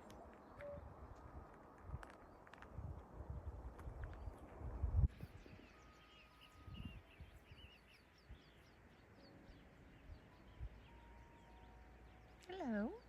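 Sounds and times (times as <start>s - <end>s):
low rumble of handling or wind: 0.0s - 13.0s
small birds chirping: 5.1s - 13.0s.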